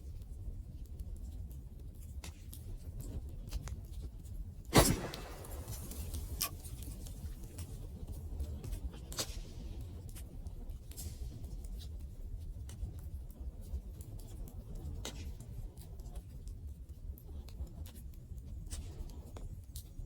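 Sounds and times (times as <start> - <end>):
low rumble of flames: 4.7 - 6.8
burning wood popping and snapping: 4.8 - 6.8.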